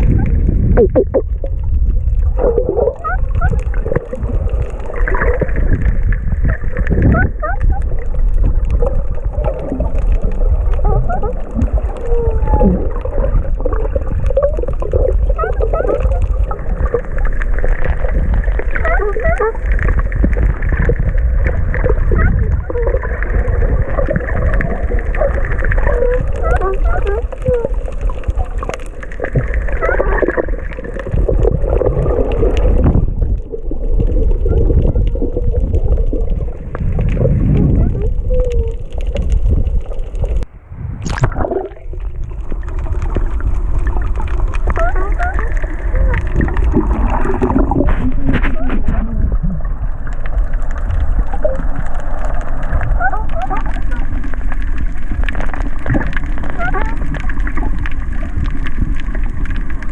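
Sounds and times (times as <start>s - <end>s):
low rumble of water: 0.0s - 59.9s
squeaky underwater chirps: 7.0s - 7.9s, 15.3s - 16.2s, 18.8s - 19.6s, 25.2s - 27.8s, 29.6s - 30.4s, 44.7s - 46.6s, 52.9s - 54.1s, 56.5s - 57.1s.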